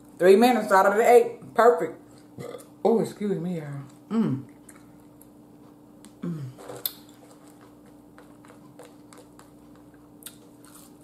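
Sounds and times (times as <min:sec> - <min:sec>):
faint steady hum: 0:00.0 - 0:11.0
person chewing food: 0:03.9 - 0:11.0
person humming: 0:04.1 - 0:04.5, 0:06.2 - 0:06.7.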